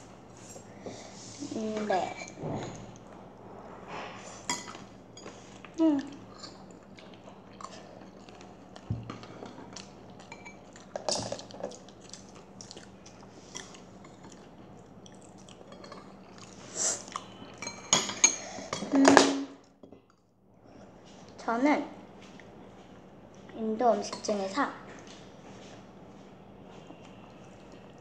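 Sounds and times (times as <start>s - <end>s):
faint steady hum: 0.0s - 28.0s
child chewing crunchy food: 5.2s - 18.7s.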